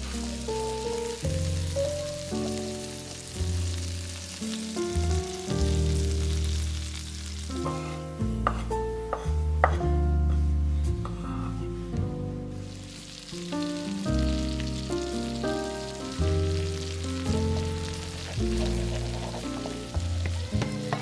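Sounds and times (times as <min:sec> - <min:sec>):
food sizzling in a pan: 0:00.0 - 0:09.8, 0:12.5 - 0:21.0
music with walking bass line: 0:00.0 - 0:21.0.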